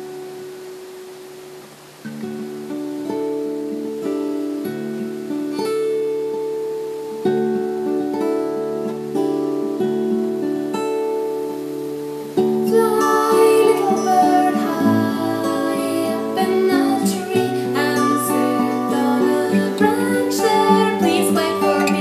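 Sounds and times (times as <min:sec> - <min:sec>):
acoustic guitar chords: 0:00.0 - 0:22.0
wavering melody line: 0:12.6 - 0:22.0.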